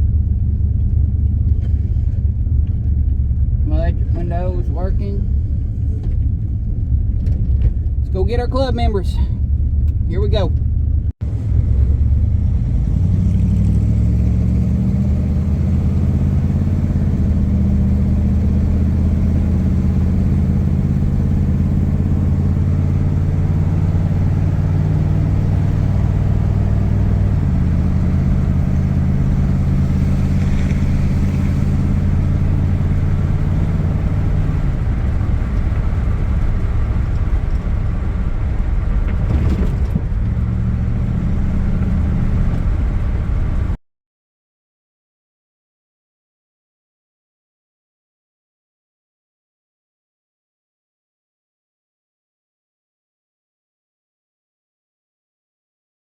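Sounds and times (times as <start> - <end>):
car engine running: 0.0 - 43.8.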